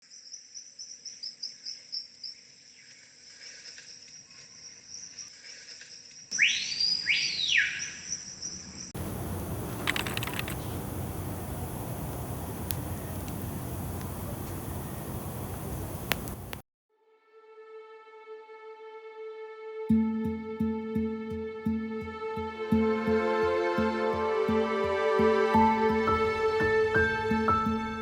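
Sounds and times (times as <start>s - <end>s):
crickets chirping: 7.8s - 16.6s
faint clicks: 9.0s - 16.6s
steady even hiss: 9.0s - 16.6s.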